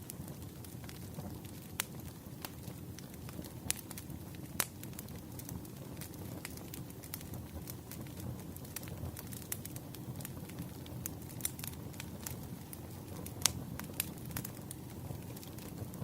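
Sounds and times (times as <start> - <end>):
firewood crackling and popping: 0.0 - 16.0.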